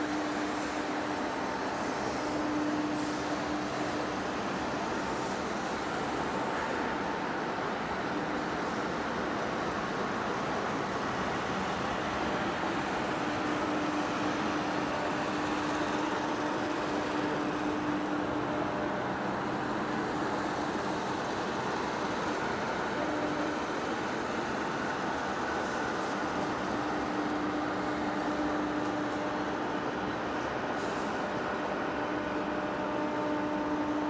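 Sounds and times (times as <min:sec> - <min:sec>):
lathe machining: 0:00.0 - 0:07.2, 0:10.8 - 0:34.0.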